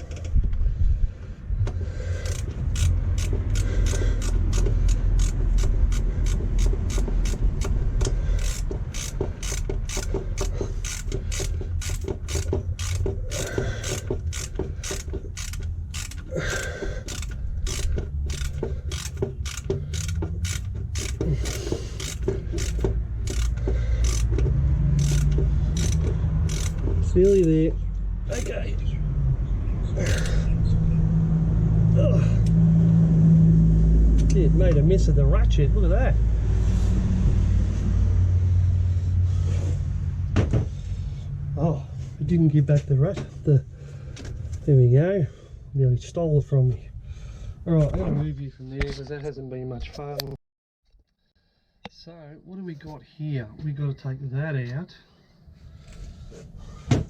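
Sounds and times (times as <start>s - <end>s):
ratchet wrench clicking: 2.1s - 27.6s, 28.3s - 28.6s.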